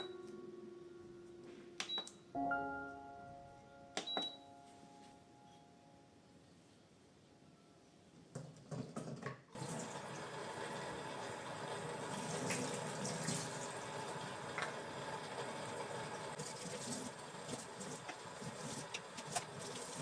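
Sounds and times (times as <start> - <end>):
tap water running into sink: 9.6 - 20.0.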